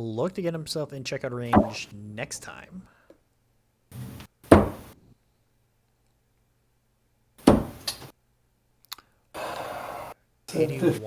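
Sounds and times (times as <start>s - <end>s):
darts striking dartboard: 1.6s - 1.8s.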